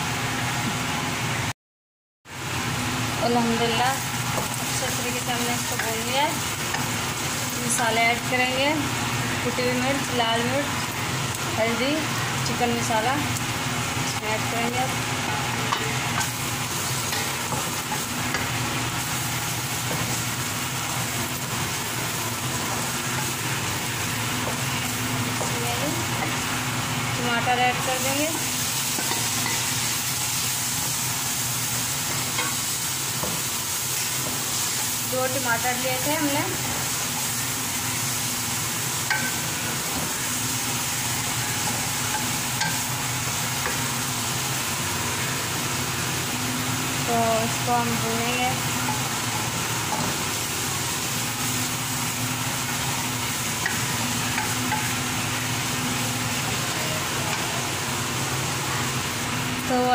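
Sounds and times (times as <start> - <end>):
meat sizzling in oil: 2.3 - 59.9
spatula stirring and scraping: 14.8 - 26.5
spatula stirring: 15.2 - 20.5.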